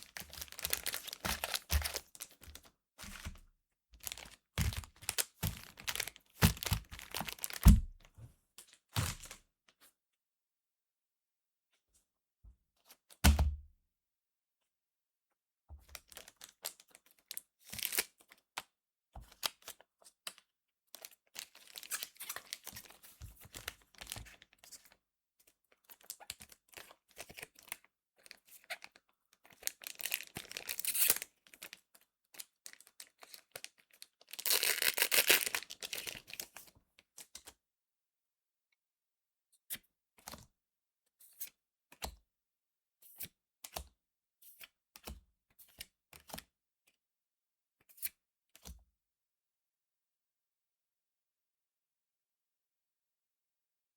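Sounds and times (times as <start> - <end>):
foil pack tearing and crinkling: 0.0 - 2.3, 4.0 - 7.7, 29.7 - 31.3, 34.3 - 36.4.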